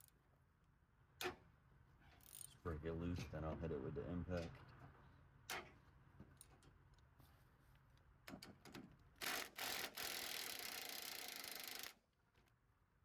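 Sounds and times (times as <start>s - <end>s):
impact wrench running: 9.2s - 12.0s.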